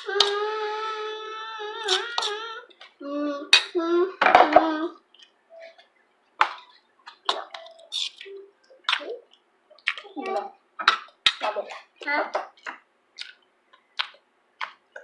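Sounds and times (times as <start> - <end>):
child's voice: 0.0 - 5.0, 10.0 - 10.6, 11.5 - 12.4.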